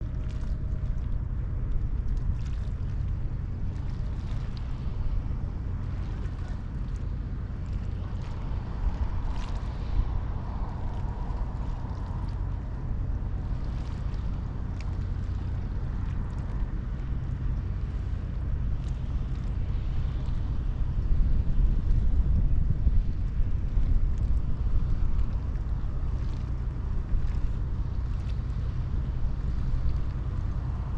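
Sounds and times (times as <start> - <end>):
ferry engines rumbling: 0.0 - 30.9
wind noise on microphone: 0.0 - 30.9.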